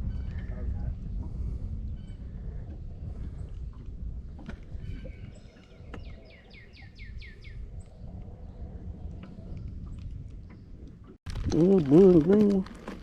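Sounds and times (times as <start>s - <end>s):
wind rumbling on microphone: 0.0s - 13.0s
small bird singing: 4.8s - 7.6s.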